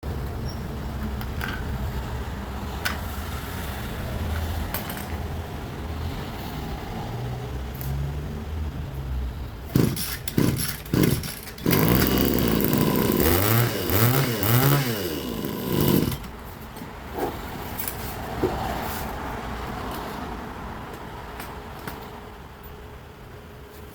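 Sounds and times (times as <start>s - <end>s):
brush cutter engine revving: 9.7s - 16.3s.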